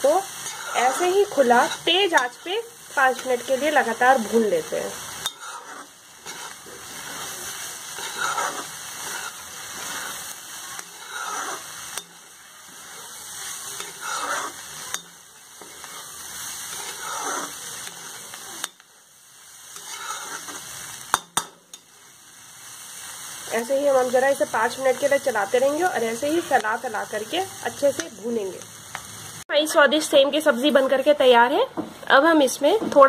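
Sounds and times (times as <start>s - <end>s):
spatula scraping: 0.0s - 18.8s, 19.7s - 21.8s
beans sizzling in oil: 0.0s - 33.0s.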